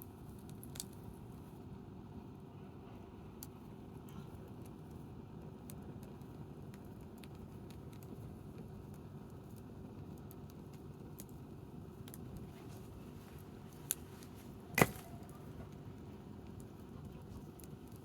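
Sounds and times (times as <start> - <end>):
low background rumble: 0.0 - 18.0
campfire snaps and pops: 0.1 - 1.3, 3.4 - 18.0.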